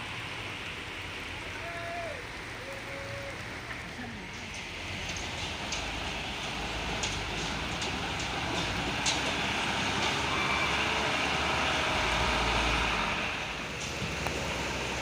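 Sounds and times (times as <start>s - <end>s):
truck engine rumble: 0.0s - 15.0s.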